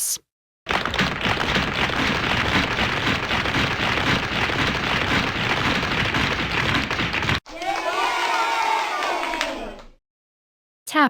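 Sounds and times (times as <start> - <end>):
rain pattering: 0.7 - 7.4.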